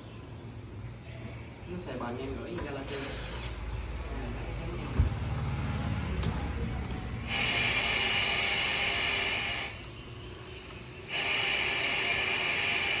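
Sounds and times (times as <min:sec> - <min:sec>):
radio static hiss: 0:02.2 - 0:03.8, 0:07.2 - 0:09.8, 0:11.0 - 0:13.0.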